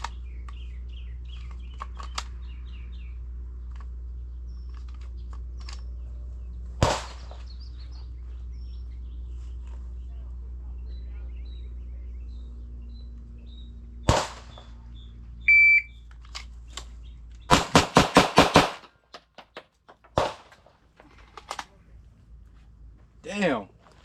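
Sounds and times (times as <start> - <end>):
pistol shots: 6.8 - 7.4, 14.0 - 14.8, 17.5 - 19.5, 20.1 - 20.7
faint gunshots: 6.8 - 7.5, 14.0 - 14.9, 17.5 - 20.8
shot timer beep: 15.5 - 15.9.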